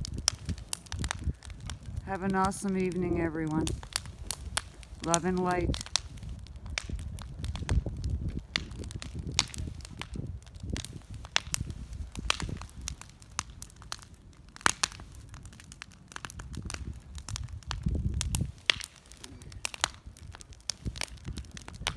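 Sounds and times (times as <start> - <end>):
bonfire crackling and popping: 0.0 - 21.9.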